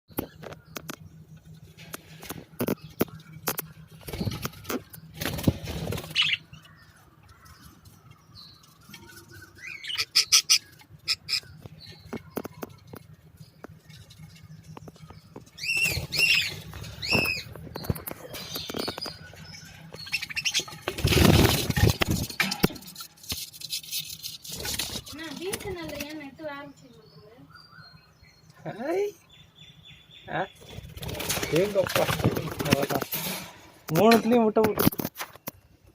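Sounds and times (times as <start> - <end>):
sharp taps and scratches: 0.1 - 6.7, 10.5 - 26.2
budgerigars chirping: 9.4 - 20.9
wing flapping: 20.2 - 26.1, 30.7 - 33.5.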